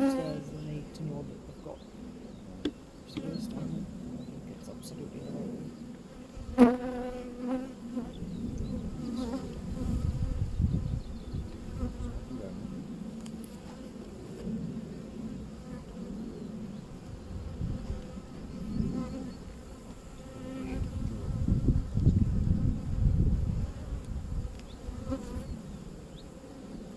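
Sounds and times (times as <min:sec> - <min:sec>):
honeybees buzzing: 0:00.0 - 0:26.9.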